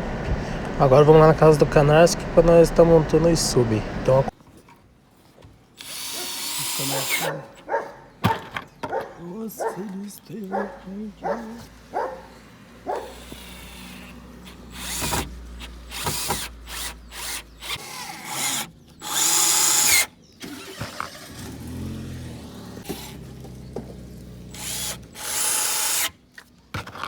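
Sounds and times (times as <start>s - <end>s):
power tool bursts: 5.8s - 7.4s, 12.6s - 21.9s, 24.4s - 26.2s.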